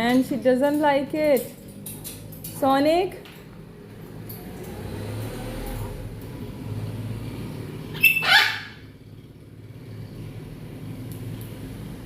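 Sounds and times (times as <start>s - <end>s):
parrot call: 7.9s - 8.9s.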